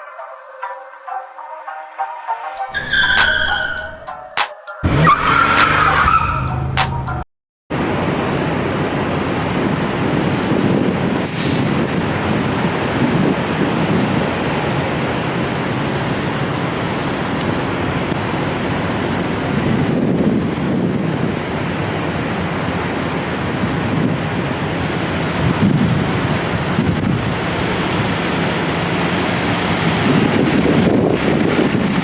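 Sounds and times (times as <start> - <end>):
vehicle road noise rumble: 4.8 - 32.0
brief sharp hiss: 11.3 - 11.7.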